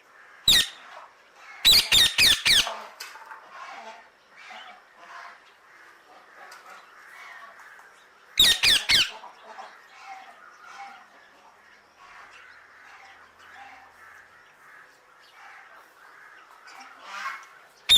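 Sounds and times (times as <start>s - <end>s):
parakeet harsh squawks: 0.5s - 0.8s, 1.6s - 2.7s, 8.4s - 9.2s.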